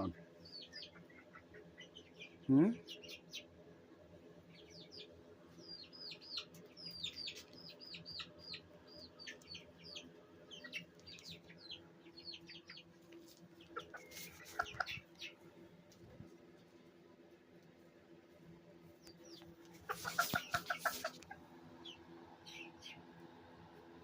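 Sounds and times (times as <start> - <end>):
chicks peeping: 0.0 - 3.6, 4.4 - 16.7, 18.8 - 23.3.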